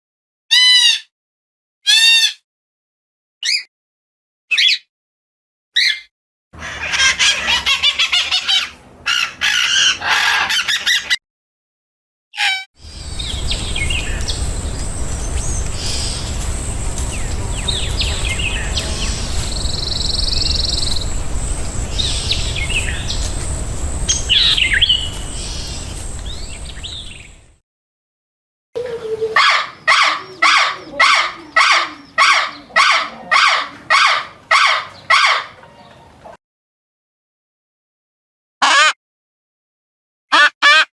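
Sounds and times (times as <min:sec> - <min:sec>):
birds chirping and calling: 0:05.8 - 0:06.0, 0:06.6 - 0:11.2, 0:12.4 - 0:27.5, 0:28.8 - 0:36.3
thin high whine: 0:12.8 - 0:27.5
steady rushing noise: 0:12.8 - 0:27.6.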